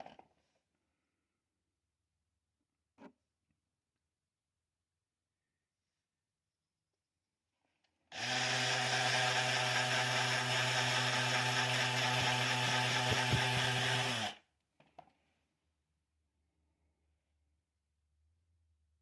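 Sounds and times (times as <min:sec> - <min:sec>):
power tool working wood: 0:08.1 - 0:14.4.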